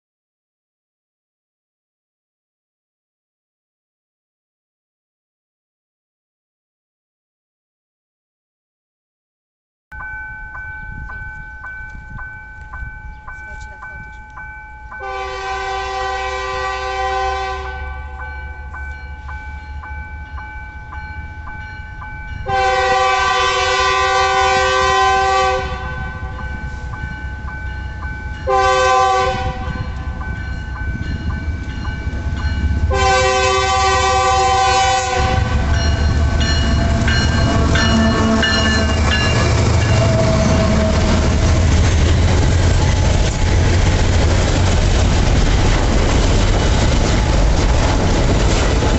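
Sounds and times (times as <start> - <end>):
train rumbling past: 10.0 - 48.9
locomotive air horn blasts: 15.0 - 18.2, 22.5 - 26.4, 28.4 - 30.1, 32.9 - 35.9, 36.8 - 39.1, 39.9 - 41.4.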